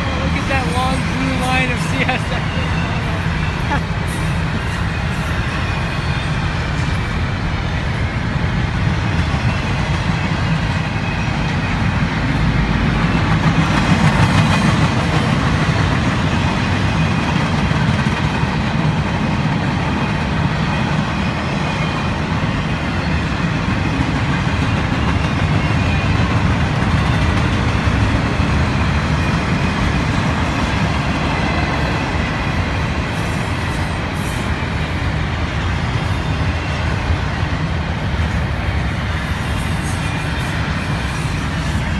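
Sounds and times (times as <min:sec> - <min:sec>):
freight train wheels rolling on track: 0:00.0 - 0:41.9.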